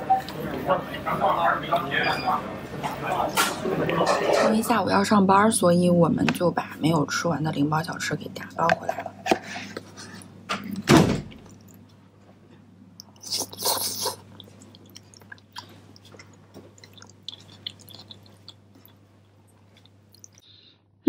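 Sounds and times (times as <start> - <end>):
person chewing soft food: 12.8 - 20.4
wet mouth clicks: 13.0 - 20.4.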